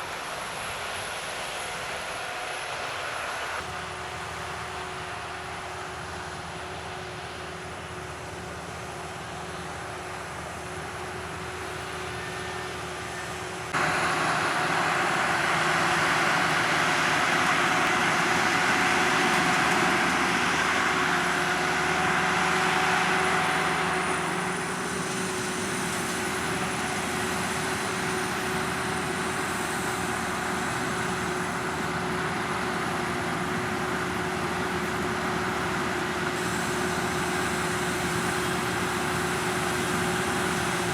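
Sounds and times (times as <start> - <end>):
combine harvester engine drone: 0.0 - 40.9
rushing noise: 10.4 - 40.9.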